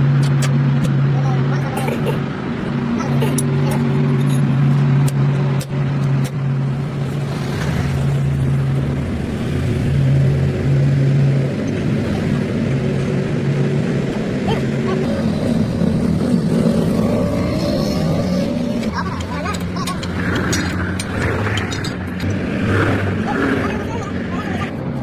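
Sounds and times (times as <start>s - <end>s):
engine humming steadily: 0.0s - 25.0s
sharp metallic clicks: 18.7s - 23.0s.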